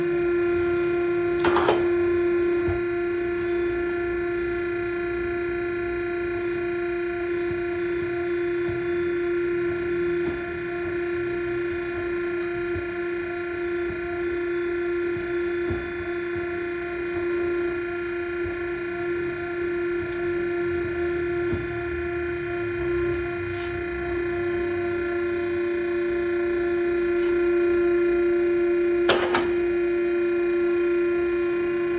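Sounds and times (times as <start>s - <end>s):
electric motor humming: 0.6s - 4.2s, 23.2s - 30.9s.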